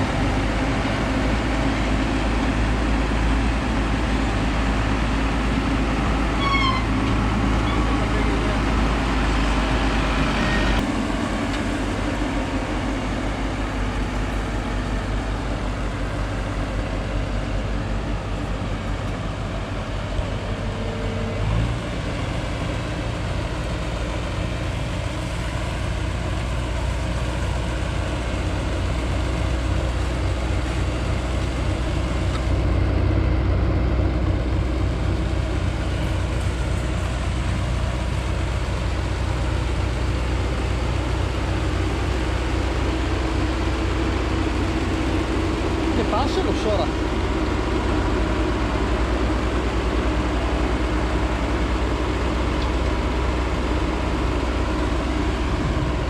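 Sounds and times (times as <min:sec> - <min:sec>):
sprayer diesel engine running: 0:00.0 - 0:56.0.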